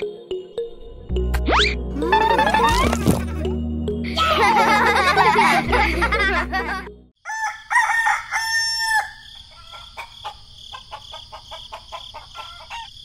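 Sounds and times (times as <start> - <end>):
rooster crowing: 7.2 - 13.0.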